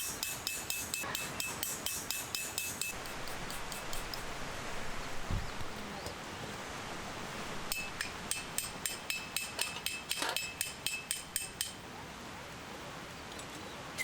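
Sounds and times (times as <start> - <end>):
hammer striking metal stake: 0.0 - 4.2, 7.7 - 11.8.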